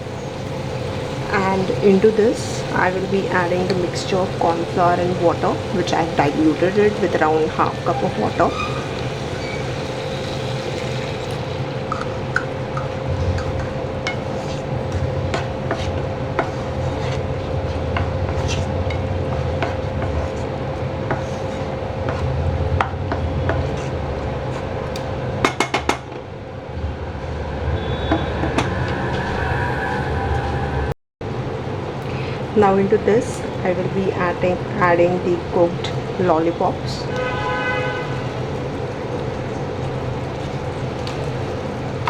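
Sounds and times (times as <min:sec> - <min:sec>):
spatula scraping a pan: 0:03.3 - 0:25.7.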